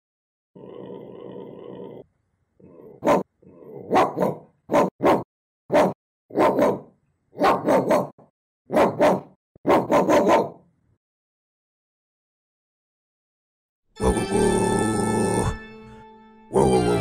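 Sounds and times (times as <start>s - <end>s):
person imitating dog barks: 2.7s - 10.6s, 14.0s - 15.6s, 16.5s - 17.0s.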